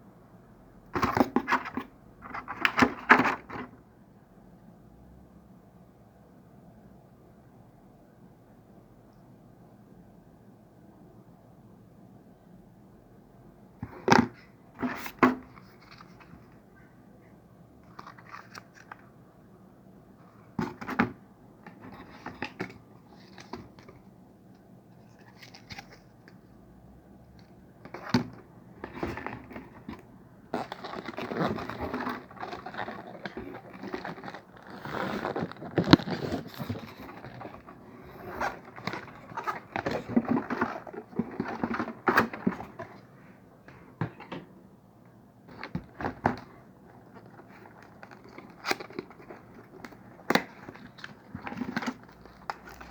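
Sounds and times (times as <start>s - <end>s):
plastic bags crinkling: 30.6s - 42.8s.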